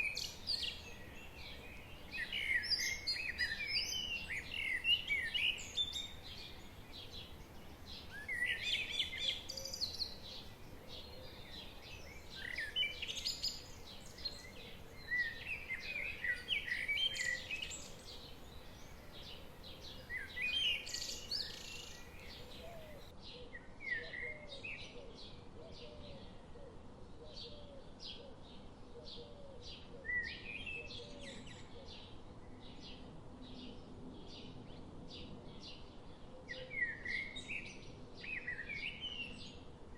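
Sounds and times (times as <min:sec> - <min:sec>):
babbling forest stream: 0:00.0 - 0:23.1
songbirds chirping: 0:00.0 - 0:39.9.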